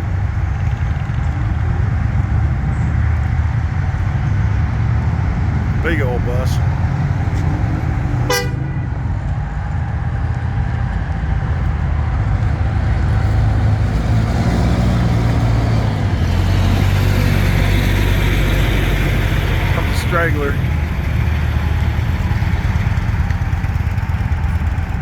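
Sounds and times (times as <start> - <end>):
bus engine rumble: 0.0 - 25.0
motorcycles departing: 0.0 - 25.0
short horn toot: 8.3 - 8.7.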